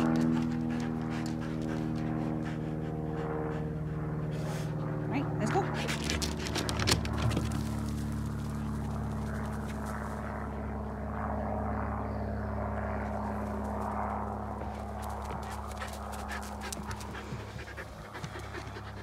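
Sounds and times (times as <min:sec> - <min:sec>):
dog panting: 0:00.0 - 0:07.8, 0:14.6 - 0:19.0
steady low hum: 0:00.0 - 0:19.0.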